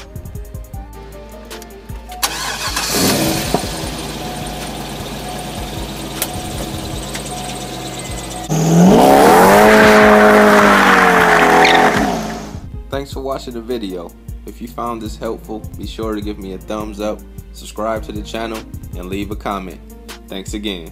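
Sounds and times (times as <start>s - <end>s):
car engine starting and idling: 2.0s - 12.7s
engine revving loudly: 2.3s - 12.6s
tyres squealing: 4.4s - 12.6s.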